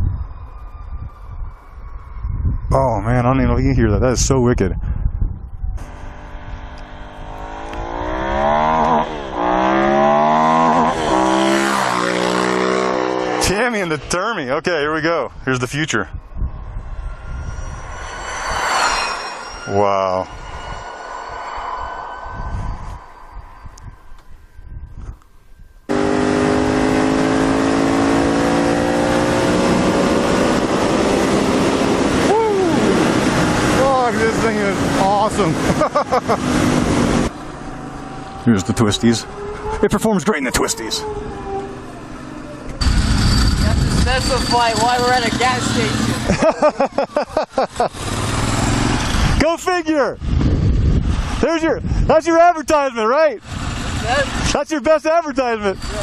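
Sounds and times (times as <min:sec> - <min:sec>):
wind rush on microphone: 0:00.0 - 0:08.5, 0:14.8 - 0:25.8, 0:29.1 - 0:37.4, 0:42.8 - 0:46.4, 0:50.0 - 0:52.3
motorcycle accelerating hard: 0:05.8 - 0:13.7, 0:25.9 - 0:40.0, 0:47.5 - 0:49.4, 0:53.4 - 0:54.5.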